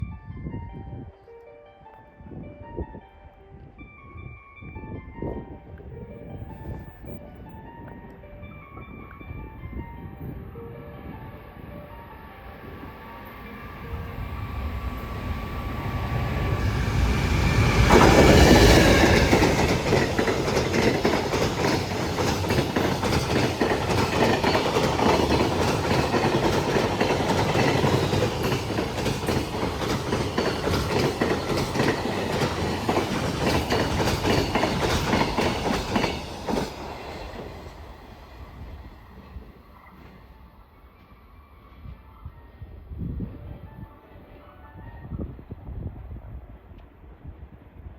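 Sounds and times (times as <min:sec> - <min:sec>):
freight train passing: 0:04.1 - 0:47.9
wagons clacking over rail joints: 0:16.7 - 0:38.0.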